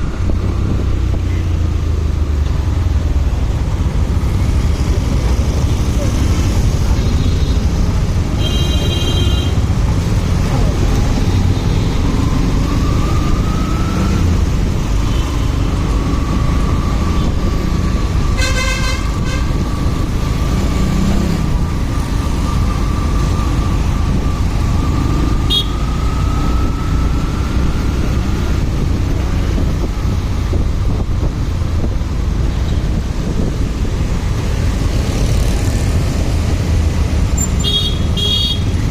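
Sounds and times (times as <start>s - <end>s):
motorcycle engine and road noise: 0.0s - 38.9s
vehicle horn: 18.4s - 19.6s, 25.5s - 25.8s, 37.6s - 38.7s
wind rush: 26.1s - 37.1s.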